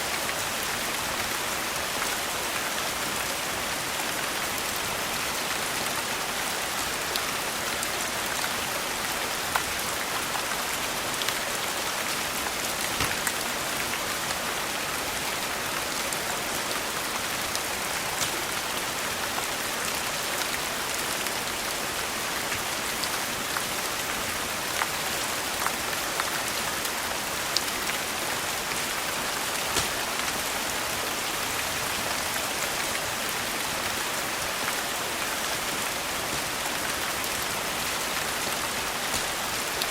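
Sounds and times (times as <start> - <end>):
rain hissing: 10.4 - 15.6, 27.3 - 39.9
wood fire crackling: 12.7 - 13.6, 29.4 - 30.4, 35.3 - 39.9.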